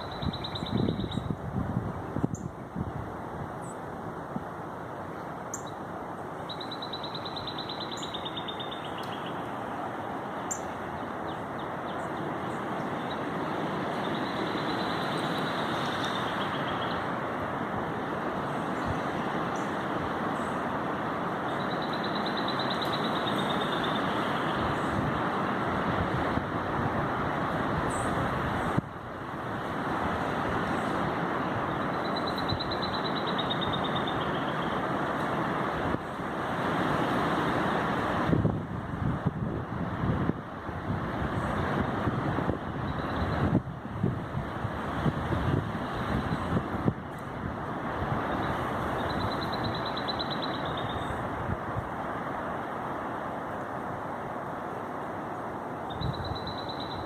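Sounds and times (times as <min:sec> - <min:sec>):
strong wind rushing: 0:00.0 - 0:04.6, 0:37.6 - 0:49.9
high trilling call: 0:55.9 - 0:57.0.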